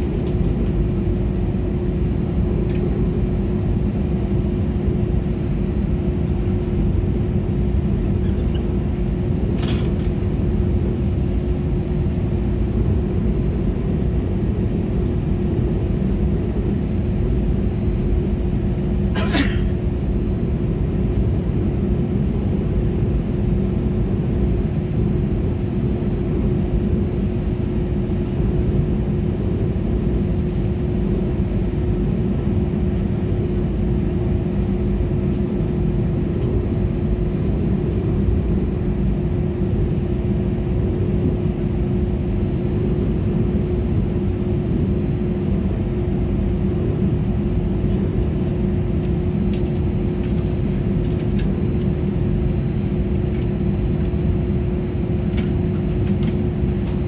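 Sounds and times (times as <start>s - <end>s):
jet engines idling rumble: 0.0s - 57.0s
steady cabin hum: 0.0s - 57.0s.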